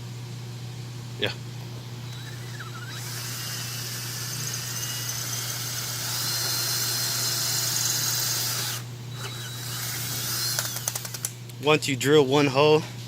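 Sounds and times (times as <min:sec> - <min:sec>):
power drill whining: 0:02.0 - 0:11.3.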